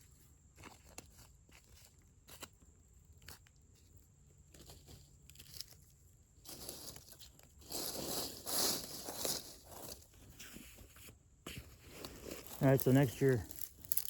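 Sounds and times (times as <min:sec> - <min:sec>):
twigs rustling and crunching: 0:04.4 - 0:10.2, 0:11.8 - 0:14.0.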